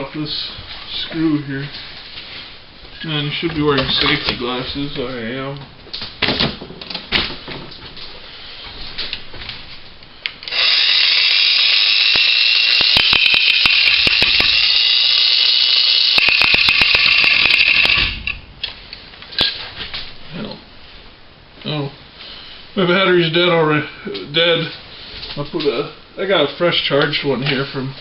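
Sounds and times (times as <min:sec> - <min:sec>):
angle grinder whine: 0:10.4 - 0:18.4
grinding wheel clicks: 0:10.5 - 0:18.4.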